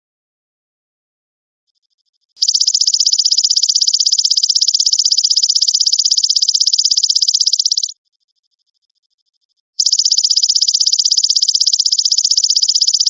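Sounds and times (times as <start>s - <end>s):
grasshopper pulsing trill: 2.4s - 8.0s, 9.8s - 13.0s.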